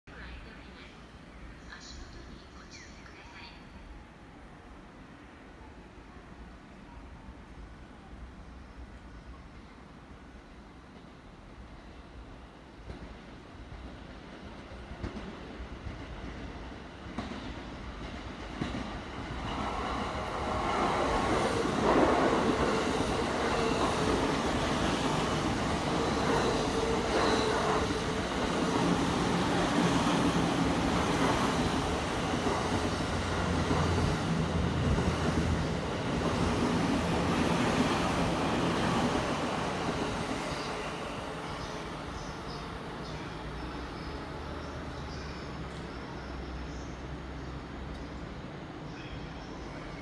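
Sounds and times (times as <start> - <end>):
train wheels rumbling on rail: 12.4 - 47.2.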